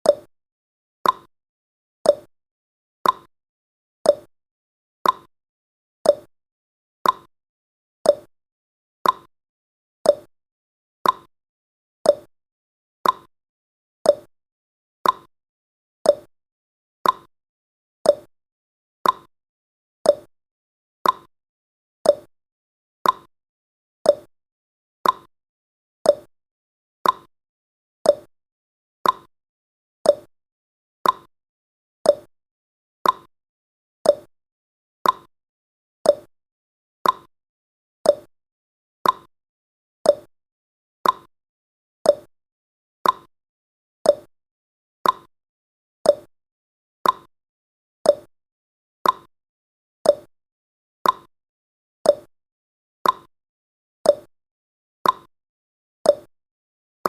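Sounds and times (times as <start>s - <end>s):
timer ticking: 0.0s - 0.3s, 1.0s - 1.3s, 2.1s - 2.3s, 3.0s - 3.3s, 4.1s - 4.3s, 5.0s - 5.3s, 6.1s - 6.3s, 7.0s - 7.3s, 8.1s - 8.3s, 9.0s - 9.3s, 10.1s - 10.3s, 11.0s - 11.3s, 12.1s - 12.3s, 13.0s - 13.3s, 14.1s - 14.3s, 15.0s - 15.3s, 16.1s - 16.3s, 17.0s - 17.3s, 18.1s - 18.3s, 19.0s - 19.3s, 20.1s - 20.3s, 21.0s - 21.3s, 22.0s - 22.3s, 23.0s - 23.3s, 24.1s - 24.3s, 25.0s - 25.3s, 26.1s - 26.3s, 27.0s - 27.3s, 28.0s - 28.3s, 29.0s - 29.3s, 30.0s - 30.3s, 31.0s - 31.3s, 32.1s - 32.3s, 33.0s - 33.3s, 34.0s - 34.3s, 35.0s - 35.3s, 36.0s - 36.3s, 37.0s - 37.3s, 38.0s - 38.3s, 39.0s - 39.3s, 40.1s - 40.3s, 41.0s - 41.3s, 42.1s - 42.3s, 43.0s - 43.3s, 44.1s - 44.3s, 45.0s - 45.3s, 46.1s - 46.3s, 47.0s - 47.3s, 48.1s - 48.3s, 49.0s - 49.3s, 50.1s - 50.3s, 51.0s - 51.3s, 52.1s - 52.3s, 53.0s - 53.3s, 54.1s - 54.3s, 55.0s - 55.3s, 56.1s - 56.3s.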